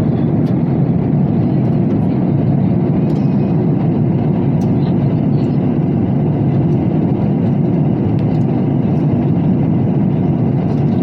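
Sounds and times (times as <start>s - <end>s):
jet engine roar: 0.0s - 11.0s.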